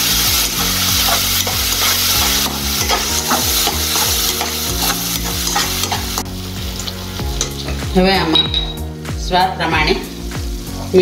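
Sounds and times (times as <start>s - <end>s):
vegetables sizzling in pan: 0.0s - 11.0s
metal spatula scraping pan: 0.3s - 8.8s.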